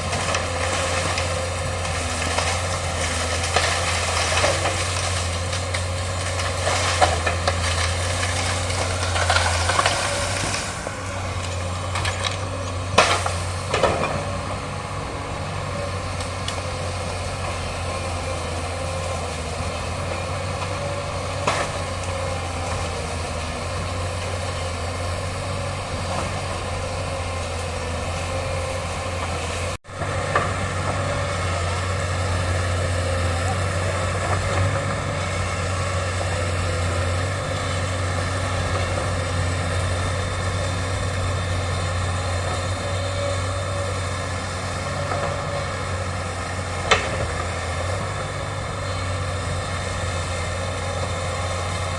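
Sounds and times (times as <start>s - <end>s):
excavator diesel engine humming: 0.0s - 51.9s
sharp cracks or knocks: 0.1s - 14.2s.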